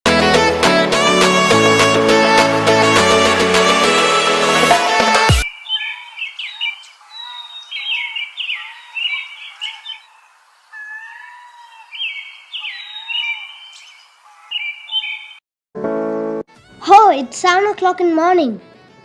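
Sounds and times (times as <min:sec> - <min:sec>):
birds chirping: 0:05.4 - 0:15.4.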